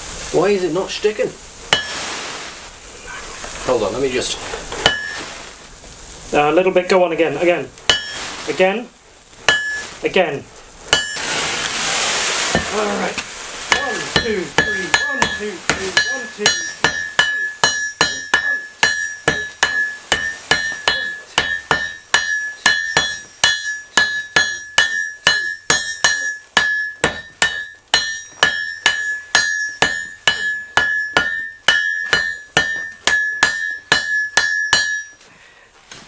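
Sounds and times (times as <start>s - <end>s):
hammers striking iron on anvil: 1.7s - 2.0s, 4.8s - 5.2s, 7.9s - 8.2s, 9.4s - 9.9s, 10.9s - 11.2s, 13.7s - 35.2s.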